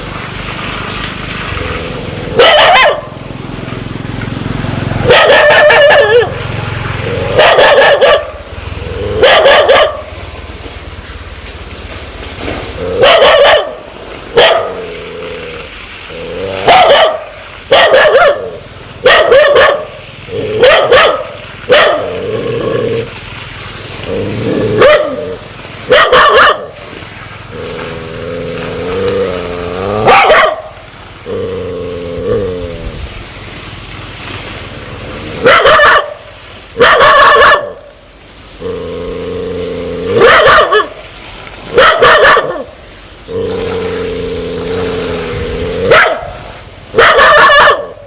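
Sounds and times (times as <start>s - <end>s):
dog barking aggressively: 1.6s - 3.2s, 4.7s - 10.2s, 12.8s - 15.0s, 16.4s - 23.1s, 24.4s - 26.9s, 28.6s - 31.5s, 35.3s - 37.9s, 40.1s - 41.0s, 41.7s - 42.8s, 43.4s - 48.0s.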